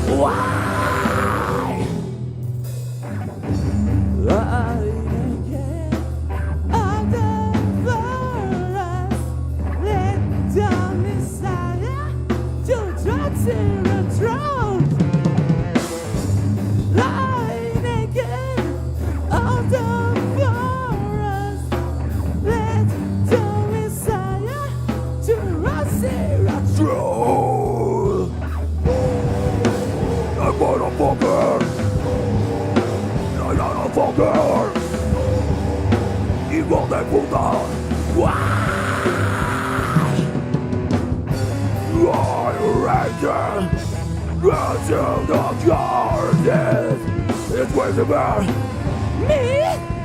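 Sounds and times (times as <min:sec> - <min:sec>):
heavy metal band playing: 0:00.0 - 0:50.0
fast drum roll: 0:25.6 - 0:50.0.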